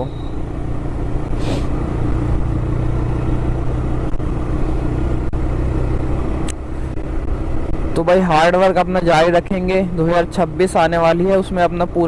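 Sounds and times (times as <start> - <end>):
motorcycle engine running: 0.0 - 12.0
brief hiss: 1.4 - 1.8.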